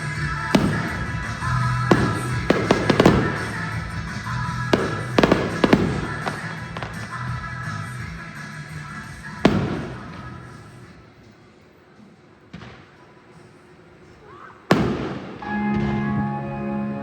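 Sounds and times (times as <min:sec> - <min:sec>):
fireworks booming: 0:00.0 - 0:11.1, 0:12.5 - 0:13.1, 0:14.6 - 0:16.3
music: 0:00.0 - 0:11.4, 0:15.4 - 0:17.0.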